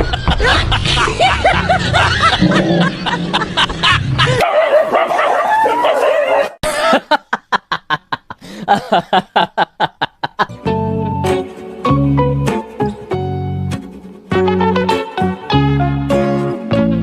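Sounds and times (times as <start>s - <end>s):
dog barking: 4.4s - 6.6s.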